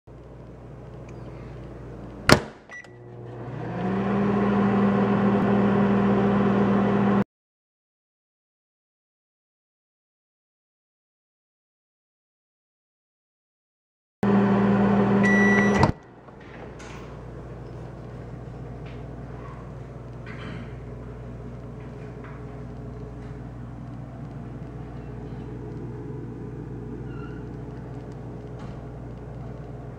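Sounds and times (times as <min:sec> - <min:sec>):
microwave oven humming: 0:00.1 - 0:07.2, 0:14.2 - 0:29.9
short beep: 0:15.2 - 0:15.9.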